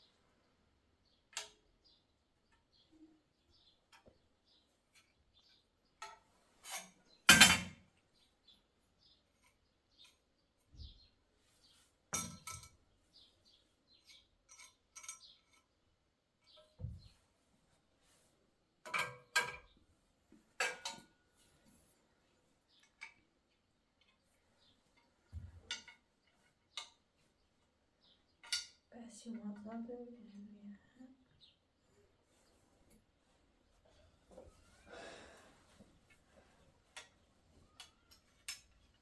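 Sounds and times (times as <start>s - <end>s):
clinks and knocks of objects: 4.9s - 7.9s, 12.1s - 12.8s, 14.0s - 15.8s, 18.8s - 19.8s, 20.6s - 21.2s, 24.9s - 27.0s, 28.4s - 28.9s, 36.9s - 39.0s.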